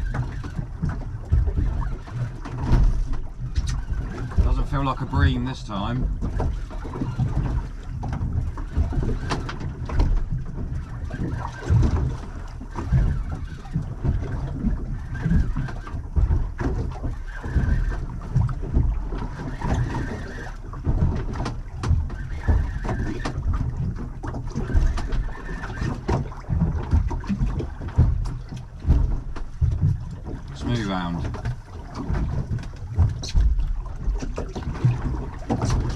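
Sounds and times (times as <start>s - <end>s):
water slapping against boat hull: 0.0s - 35.9s
wind buffeting microphone: 0.0s - 35.9s.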